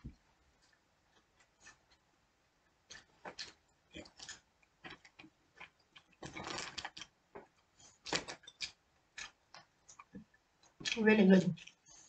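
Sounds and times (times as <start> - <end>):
chewing with wet mouth smacks: 2.9 - 12.0.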